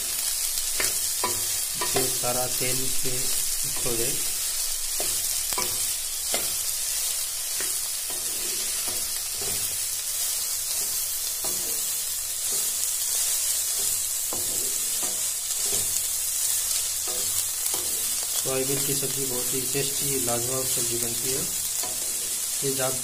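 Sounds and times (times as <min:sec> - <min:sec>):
food sizzling in oil: 0:00.0 - 0:23.0
spatula scraping pan: 0:05.0 - 0:19.5, 0:21.0 - 0:22.5.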